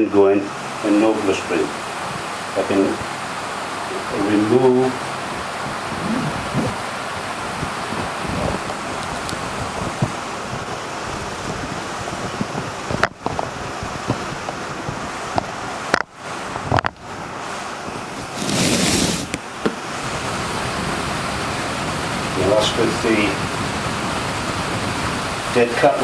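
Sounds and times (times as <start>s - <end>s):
fan wind on microphone: 0.0s - 26.0s
short loud noise rush: 18.0s - 19.4s.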